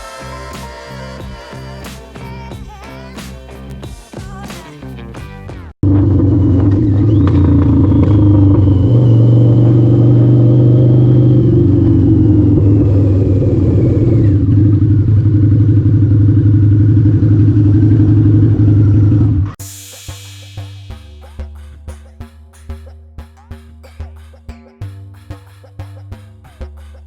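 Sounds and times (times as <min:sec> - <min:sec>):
motorcycle engine droning: 0:05.8 - 0:19.6.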